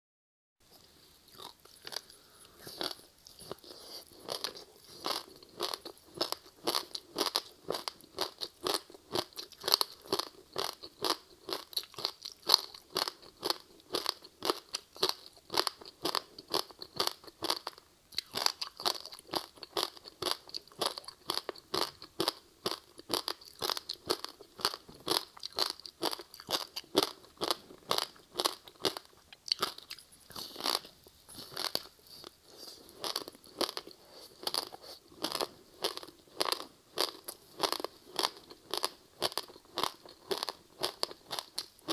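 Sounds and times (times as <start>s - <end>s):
crunching and chewing snack: 0.7s - 41.9s.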